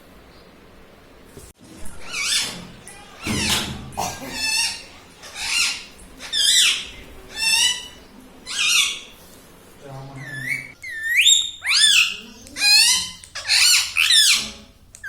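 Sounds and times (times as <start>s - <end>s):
parrot harsh calls: 4.2s - 9.2s, 10.2s - 14.6s.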